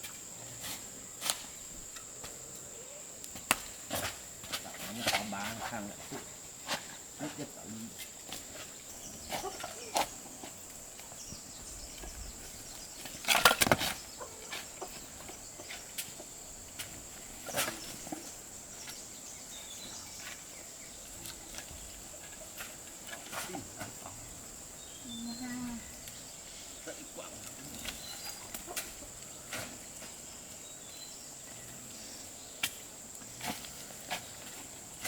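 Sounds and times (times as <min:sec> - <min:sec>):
insect-like chirring: 0:00.0 - 0:35.0.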